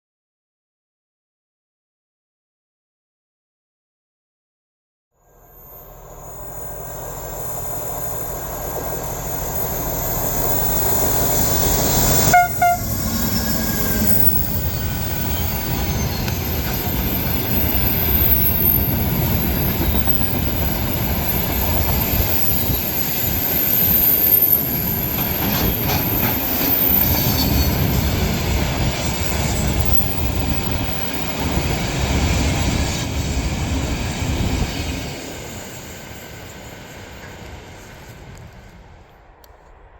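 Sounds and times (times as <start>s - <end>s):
train rumbling past: 5.2s - 39.9s
train horn blast: 12.1s - 13.9s.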